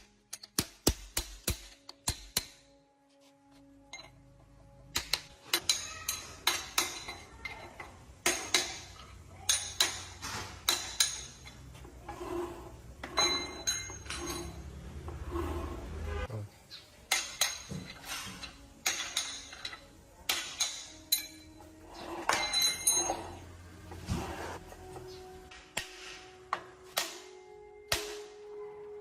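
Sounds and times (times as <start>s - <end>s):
metal tools clanking: 3.8s - 15.7s, 17.0s - 25.3s.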